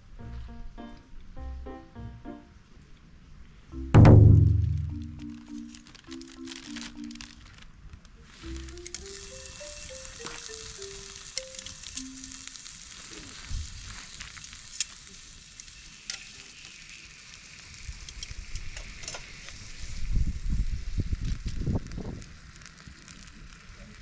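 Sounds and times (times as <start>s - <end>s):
low thumps and rumbling: 4.0s - 5.4s
meat sizzling on a grill: 8.6s - 24.0s.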